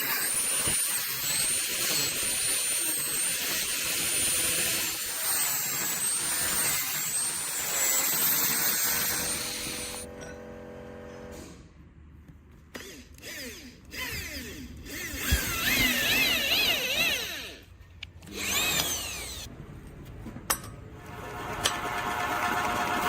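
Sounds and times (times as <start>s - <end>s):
power tool motor whining: 0.0s - 10.0s, 12.8s - 19.5s.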